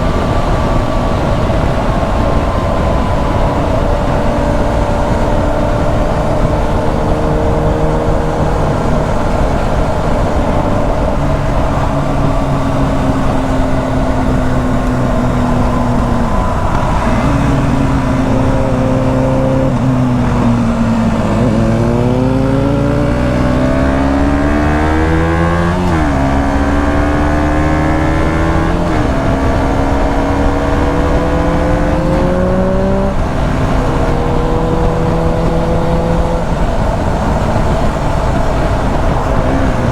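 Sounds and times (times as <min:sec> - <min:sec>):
gear upshifts: 0:00.0 - 0:39.9
motorcycle engine accelerating: 0:00.0 - 0:39.9.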